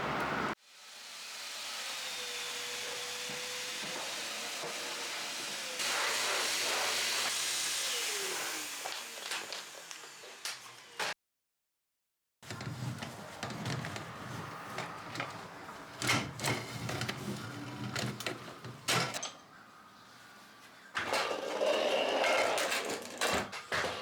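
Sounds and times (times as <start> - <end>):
hissing rush of air or steam: 3.4 - 10.1.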